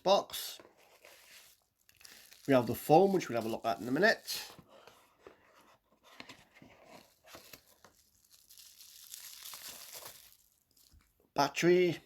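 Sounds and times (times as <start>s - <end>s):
packaging crinkling and rustling: 0.9s - 4.5s, 6.8s - 11.1s.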